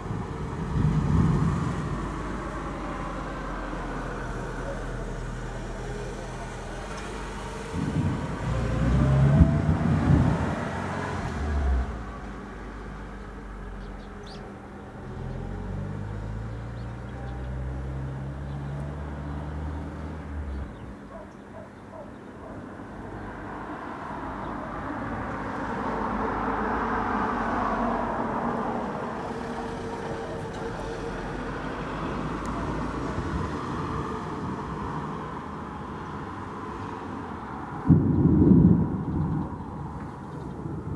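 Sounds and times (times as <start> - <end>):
passing traffic: 0.0 - 40.9
thunder rumbling: 37.9 - 40.9.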